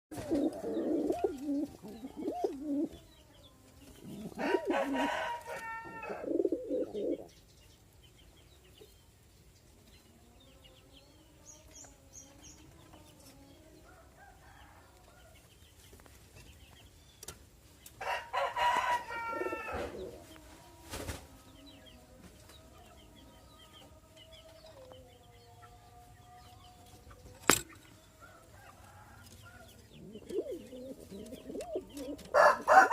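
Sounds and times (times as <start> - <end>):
pigeons cooing: 0.1 - 3.1, 4.0 - 7.3, 18.1 - 20.3, 29.5 - 32.9
rooster crowing: 4.4 - 6.4, 18.0 - 20.0, 32.3 - 32.9.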